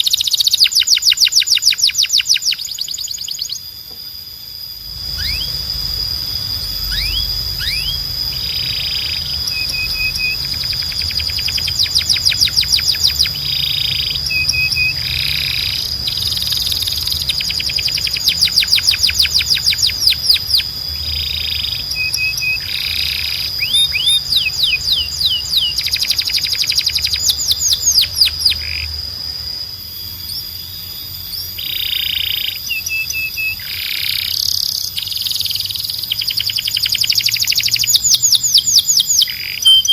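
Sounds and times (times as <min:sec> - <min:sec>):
canary singing trills: 0:00.0 - 0:39.9
low hum: 0:03.6 - 0:26.6
steady high tone: 0:03.8 - 0:28.3.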